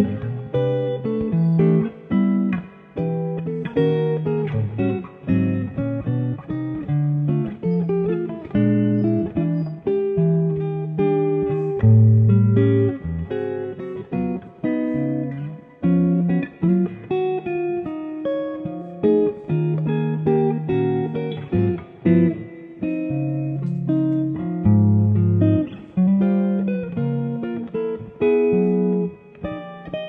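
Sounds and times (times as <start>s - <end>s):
solo guitar playing: 0.0s - 30.0s.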